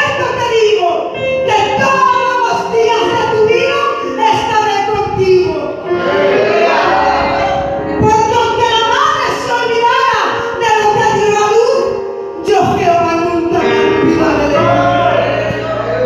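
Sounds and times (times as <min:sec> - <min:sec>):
voices singing together: 0:05.9 - 0:07.8, 0:14.5 - 0:16.0.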